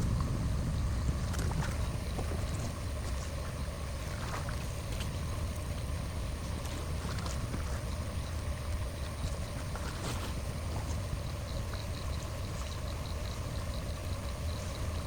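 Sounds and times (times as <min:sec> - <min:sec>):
low rumble: 0:00.0 - 0:03.6
water flowing: 0:00.0 - 0:15.0.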